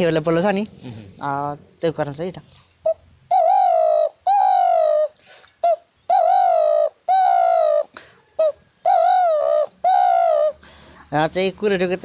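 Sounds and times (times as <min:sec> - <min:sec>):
man imitating dove coos: 0:02.8 - 0:10.6.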